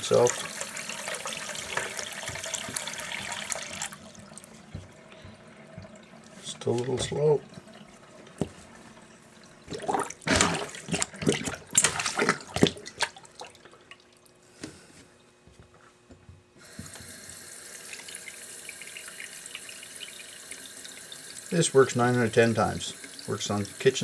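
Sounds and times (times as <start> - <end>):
tap running into sink: 0.0 - 8.7, 16.6 - 18.2
water gurgling in a basin: 0.0 - 14.3.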